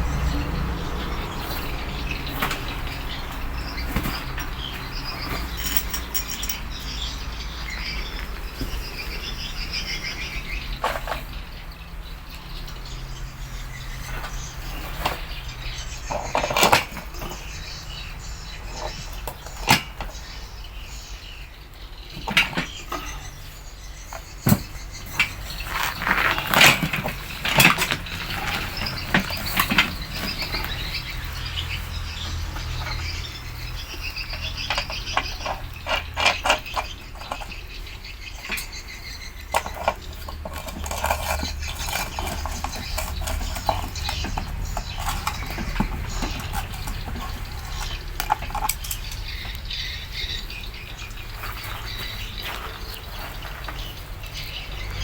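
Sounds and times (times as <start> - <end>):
knocks and clinks: 3.9 - 7.0.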